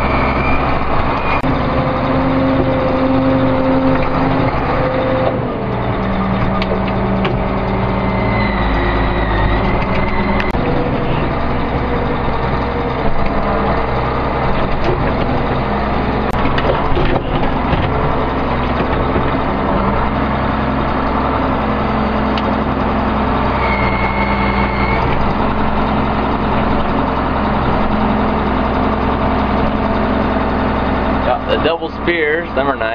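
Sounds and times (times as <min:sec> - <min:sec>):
tractor diesel engine running: 0:00.0 - 0:32.9
high whine: 0:23.4 - 0:25.8.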